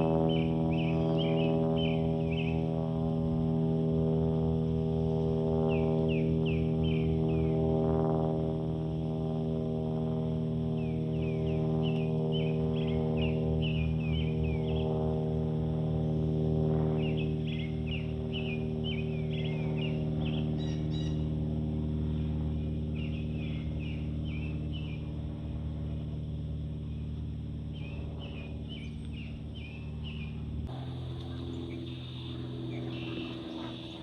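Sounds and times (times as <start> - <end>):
low droning hum: 0.0 - 34.0
songbird chirping: 28.7 - 34.0.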